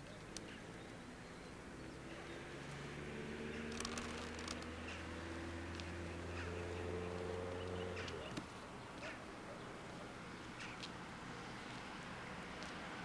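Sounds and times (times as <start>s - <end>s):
bird chirps: 5.9s - 9.7s.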